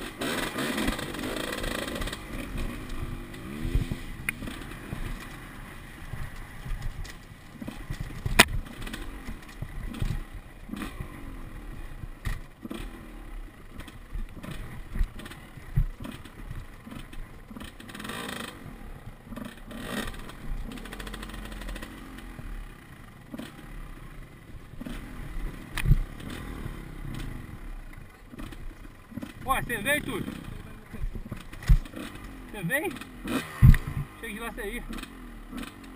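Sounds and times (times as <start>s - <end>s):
dirt bike engine revving: 0.0s - 35.9s
knocks and clatter: 28.3s - 34.0s.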